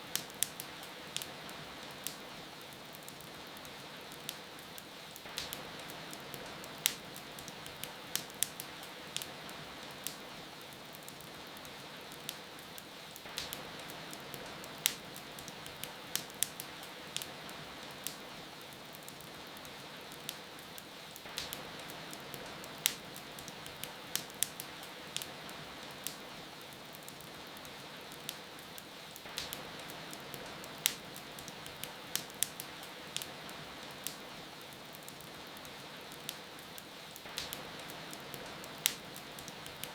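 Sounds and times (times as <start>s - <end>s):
rain hiss: 0.0s - 39.9s
wood fire crackling: 0.0s - 39.9s.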